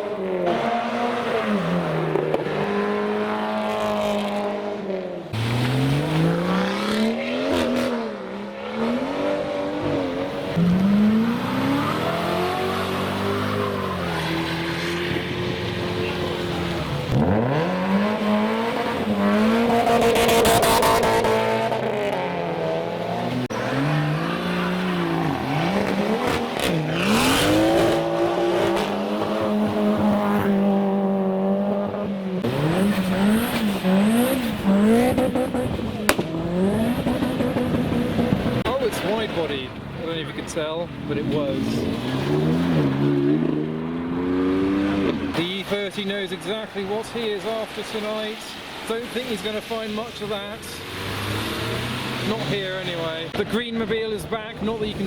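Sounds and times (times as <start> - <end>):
car engines revving: 0.0 - 55.0
tyres hissing on wet road: 44.4 - 53.3.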